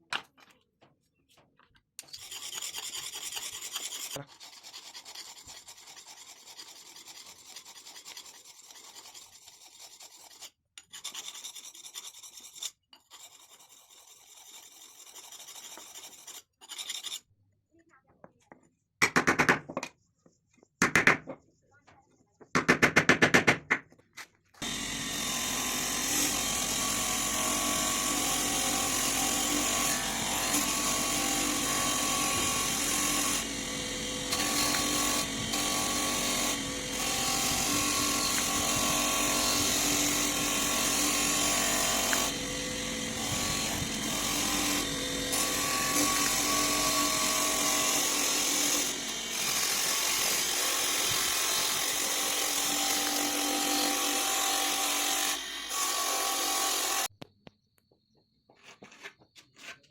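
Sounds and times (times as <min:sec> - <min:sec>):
bench grinder grinding steel: 0:24.6 - 0:57.1.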